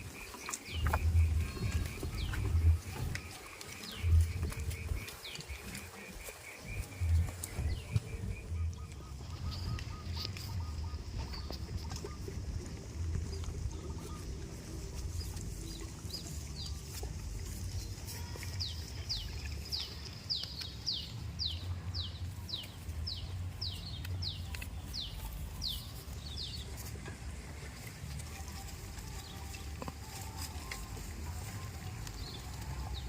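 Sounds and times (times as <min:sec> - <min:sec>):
steady low rumble: 0:00.0 - 0:29.7
bird calling high notes: 0:01.1 - 0:12.2.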